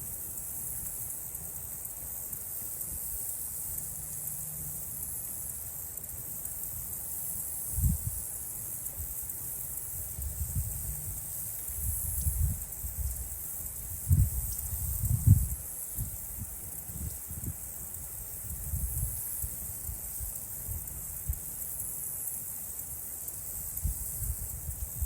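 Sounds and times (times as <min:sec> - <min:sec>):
insect chorus drone: 0:00.0 - 0:25.0.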